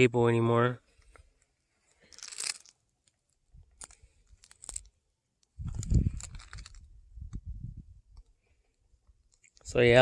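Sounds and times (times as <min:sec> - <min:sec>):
footsteps on dry leaves and gravel: 0:02.0 - 0:02.7.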